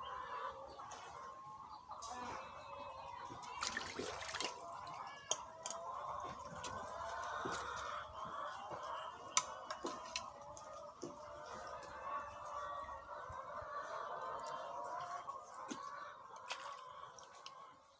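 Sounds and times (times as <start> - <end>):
wavering water background: 3.4 - 5.8
water splashing: 3.5 - 4.8.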